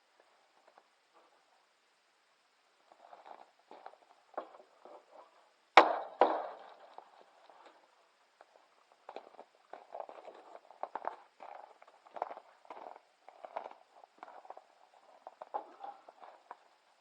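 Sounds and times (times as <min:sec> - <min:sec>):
uneven footsteps: 0:02.9 - 0:05.3, 0:06.2 - 0:17.0.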